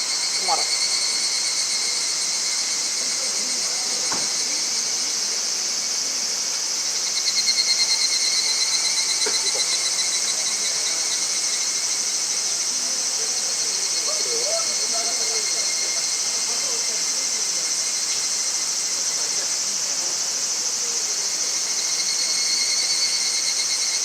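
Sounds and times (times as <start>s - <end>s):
insects chorus: 0.0s - 24.0s
faint knocks: 4.1s - 4.4s.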